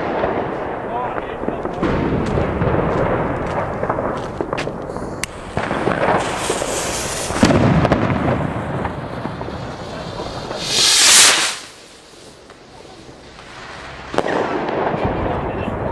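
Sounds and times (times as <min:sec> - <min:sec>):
fireworks crackling and banging: 0:00.0 - 0:15.9
rocket launching hiss: 0:04.8 - 0:14.7.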